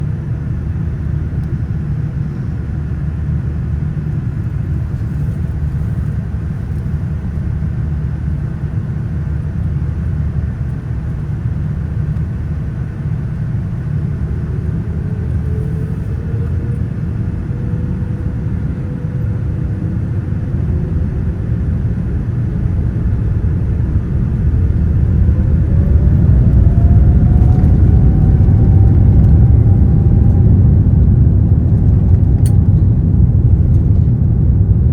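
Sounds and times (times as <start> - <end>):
jet engine rumble: 0.0 - 34.9
jet engine whine rising: 10.3 - 34.9.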